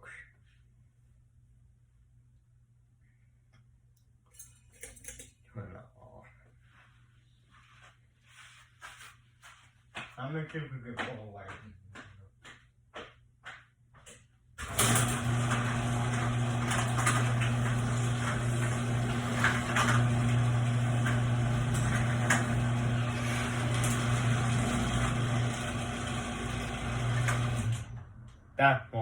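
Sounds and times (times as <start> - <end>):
fan motor hum: 14.6 - 28.7.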